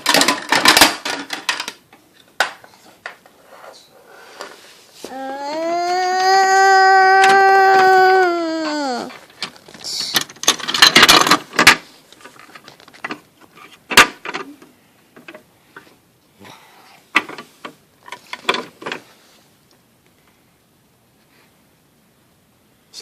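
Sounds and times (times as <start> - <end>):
child wailing: 5.0 - 9.2
small objects rattling and clicking: 9.0 - 13.2.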